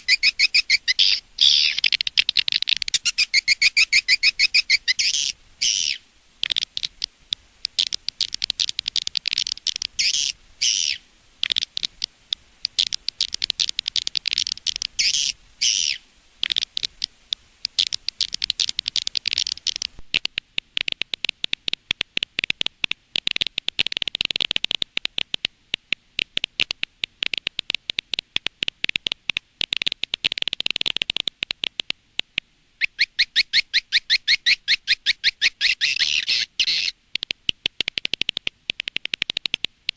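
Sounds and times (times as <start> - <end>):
rapid click chatter: 1.7 - 5.0, 6.4 - 10.1, 11.4 - 15.1, 16.4 - 32.0, 36.7 - 39.9.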